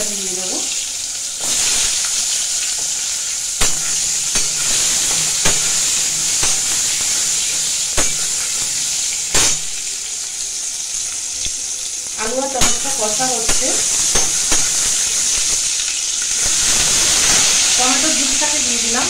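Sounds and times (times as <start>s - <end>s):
vegetables sizzling in oil: 0.0s - 19.0s
metal spatula scraping pan: 3.6s - 8.7s.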